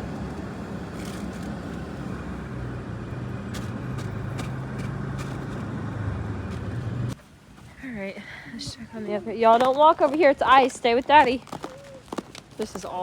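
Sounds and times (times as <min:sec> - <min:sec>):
vehicle engine running: 0:00.0 - 0:07.2.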